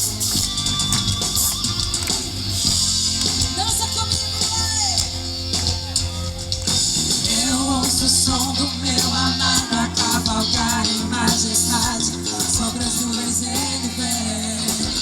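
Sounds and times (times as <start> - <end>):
guitar: 0.0 - 15.0
percussion: 0.0 - 15.0
person singing: 7.2 - 15.0.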